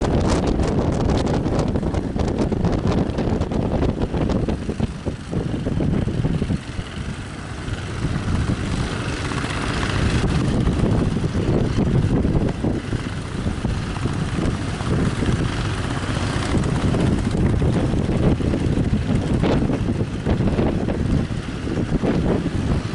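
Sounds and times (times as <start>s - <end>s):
wind buffeting microphone: 0.0s - 22.9s.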